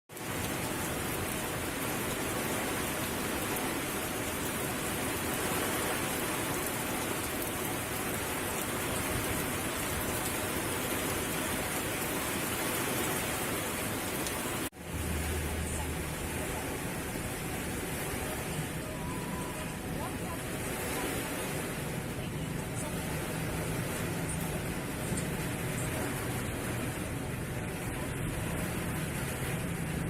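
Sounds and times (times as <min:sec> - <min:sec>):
heavy rain: 0:00.1 - 0:30.0.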